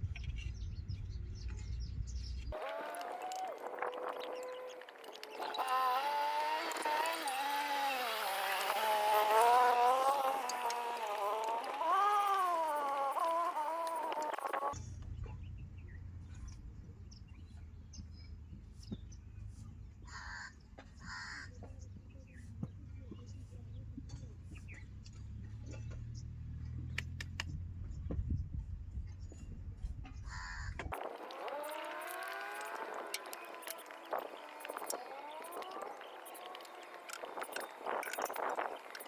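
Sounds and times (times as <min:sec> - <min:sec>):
low engine rumble: 0:00.0 - 0:20.0
small clicks: 0:02.4 - 0:15.1, 0:25.0 - 0:27.6, 0:30.8 - 0:39.0
crow cawing: 0:20.1 - 0:21.5, 0:30.3 - 0:30.7.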